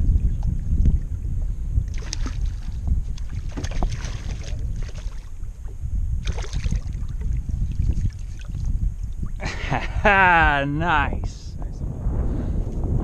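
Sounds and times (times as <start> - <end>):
wind buffeting microphone: 0.0 - 13.0
water splashing: 1.9 - 9.4.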